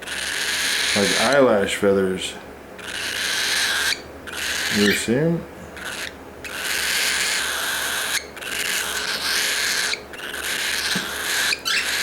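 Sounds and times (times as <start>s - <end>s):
cockatiel hissing: 2.8s - 12.0s.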